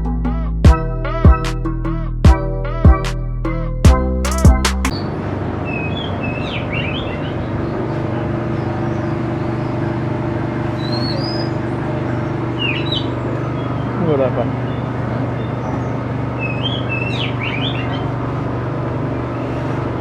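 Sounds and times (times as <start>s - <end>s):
music: 0.0s - 4.9s
songbirds chirping: 5.7s - 18.4s.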